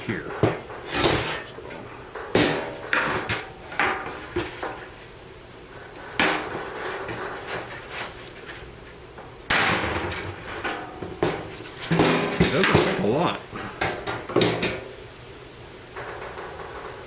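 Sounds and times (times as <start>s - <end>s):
hammer striking sheet steel: 9.5s - 14.7s.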